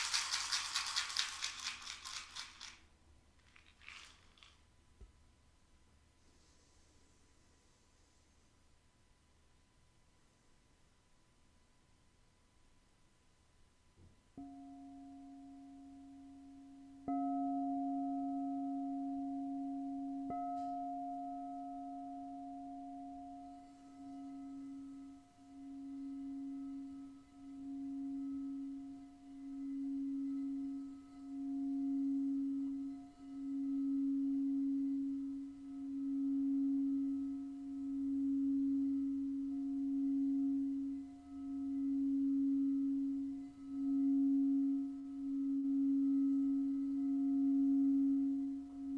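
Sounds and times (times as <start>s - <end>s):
singing bowl ringing: 14.4s - 48.9s.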